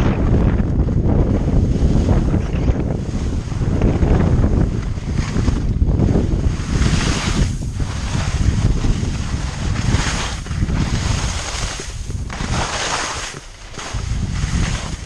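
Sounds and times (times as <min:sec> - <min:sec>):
wind buffeting microphone: 0:00.0 - 0:15.0
skis hissing on snow: 0:06.6 - 0:15.0.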